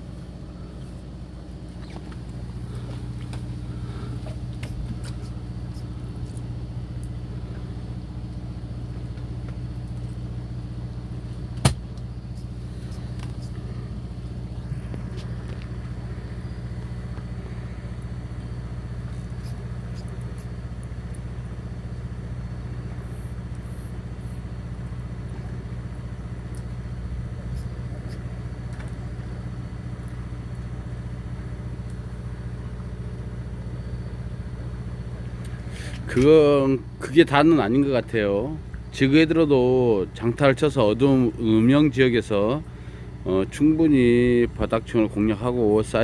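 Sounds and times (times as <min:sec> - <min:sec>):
boat engine droning: 0:00.0 - 0:46.0
sharp click or knock: 0:11.6 - 0:11.8.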